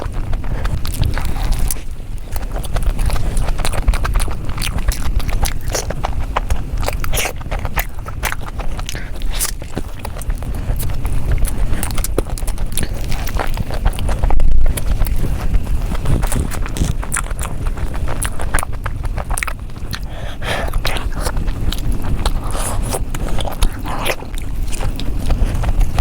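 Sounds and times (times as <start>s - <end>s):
chewing and crunching food: 0.0s - 26.0s
mouth smacking: 0.0s - 26.0s.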